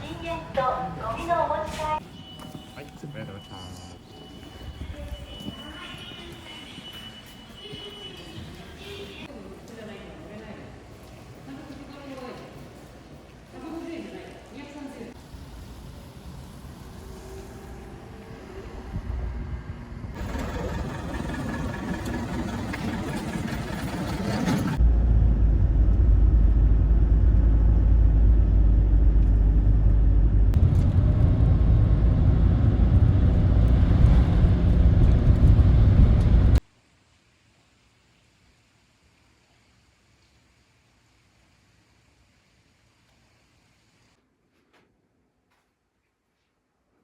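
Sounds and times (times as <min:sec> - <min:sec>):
train rumbling: 0:15.2 - 0:36.6.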